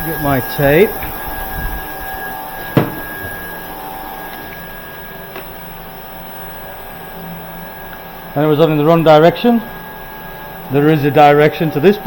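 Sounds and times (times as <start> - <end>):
faint steady tones: 0.0 - 5.2
steady machine hum: 0.0 - 12.0
handling noise: 0.9 - 4.5.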